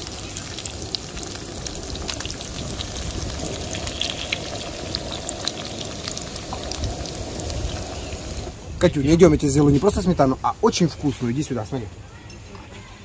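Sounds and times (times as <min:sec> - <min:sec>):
fritters sizzling in hot oil: 0:00.0 - 0:08.7.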